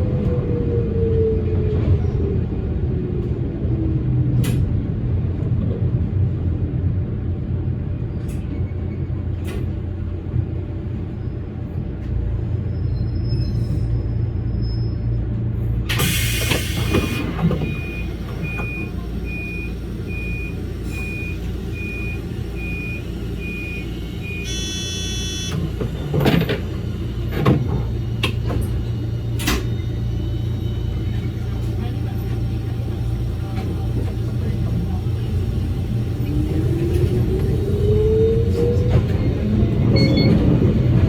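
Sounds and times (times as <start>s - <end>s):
train running rumble: 0.0s - 41.0s
high repeating beep: 24.4s - 25.5s.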